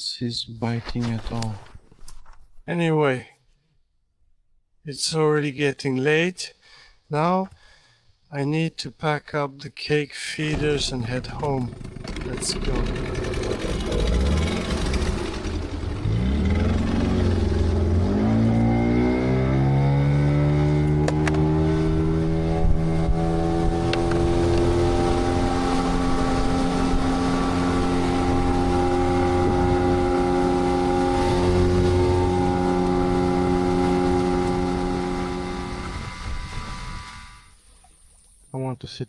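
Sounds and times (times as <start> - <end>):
engine revving: 10.5 - 37.6.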